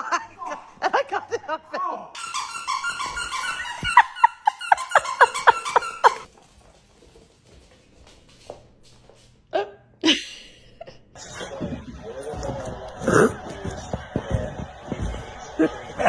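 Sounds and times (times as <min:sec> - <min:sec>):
dog barking: 0:02.2 - 0:06.3
dog yipping: 0:02.2 - 0:06.3.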